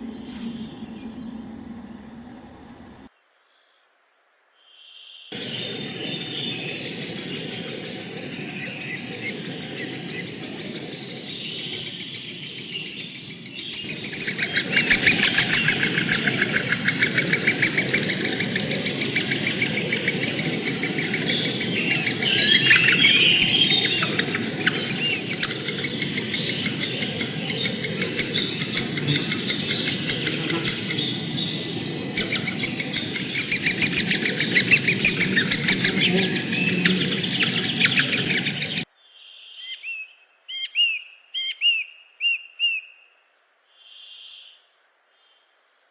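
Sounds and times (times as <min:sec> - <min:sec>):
birds chirping and chattering: 0:00.0 - 0:03.1, 0:05.3 - 0:38.9
fast pulsing trill: 0:05.4 - 0:38.8.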